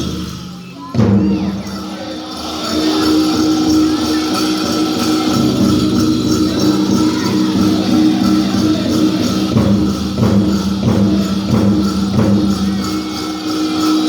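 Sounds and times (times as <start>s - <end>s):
steady drumbeat: 0.0s - 14.0s
group singing: 1.1s - 14.0s.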